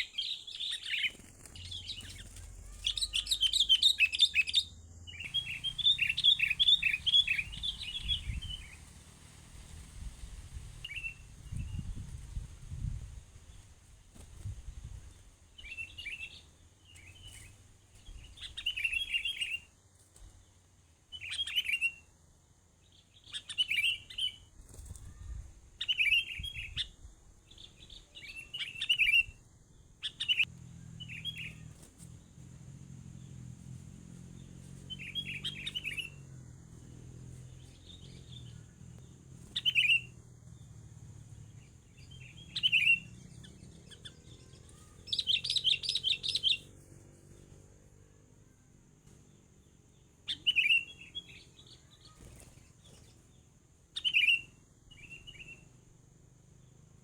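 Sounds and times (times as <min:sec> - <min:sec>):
bird chirping: 0:00.0 - 0:13.0, 0:15.6 - 0:19.7, 0:21.1 - 0:22.1, 0:22.8 - 0:32.6, 0:33.2 - 0:47.7, 0:48.5 - 0:55.8.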